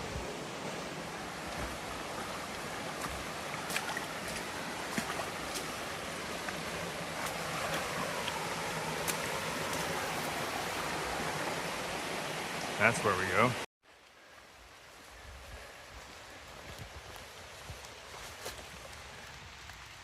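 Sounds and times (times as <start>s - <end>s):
water flowing over rocks: 0.0s - 20.0s.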